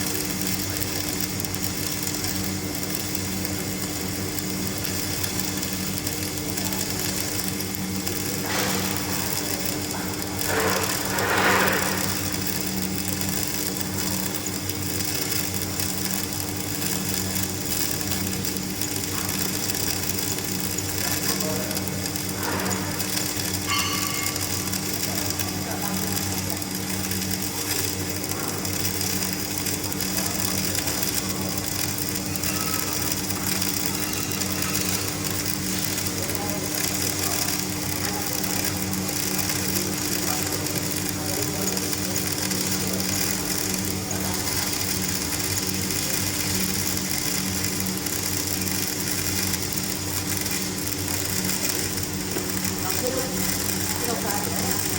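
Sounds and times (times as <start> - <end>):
electrical hum: 0.0 - 54.9
welding buzzing crackling hiss: 0.0 - 54.9.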